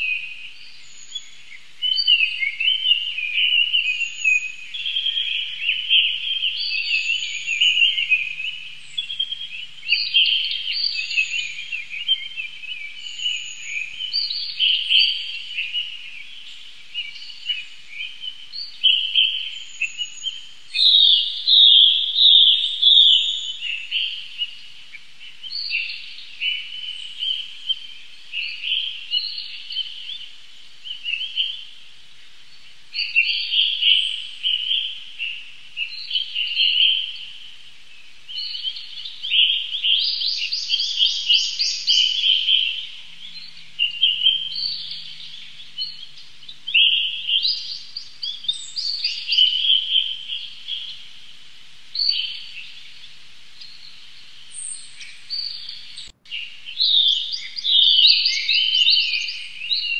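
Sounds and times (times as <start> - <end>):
bird trill: 0.0 - 31.8, 33.0 - 59.9
small birds chirping: 0.0 - 59.9.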